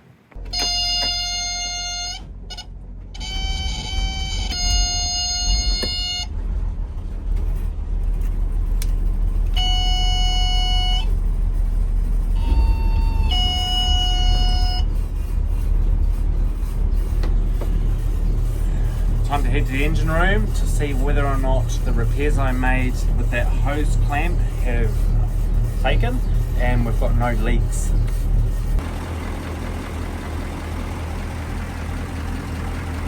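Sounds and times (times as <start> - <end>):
boat engines rumbling: 0.0 - 33.0
long electronic beeps: 0.6 - 6.4, 9.6 - 11.1, 12.4 - 15.0.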